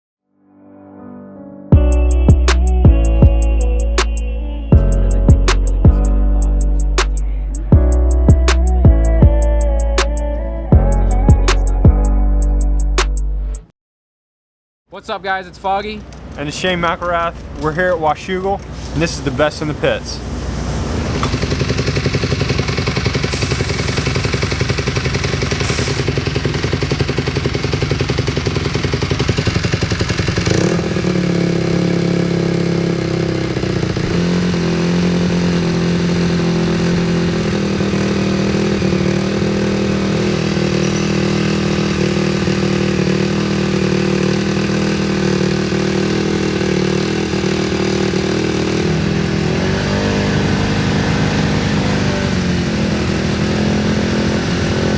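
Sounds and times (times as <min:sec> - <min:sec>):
dirt bike engine revving: 0:18.7 - 0:54.9.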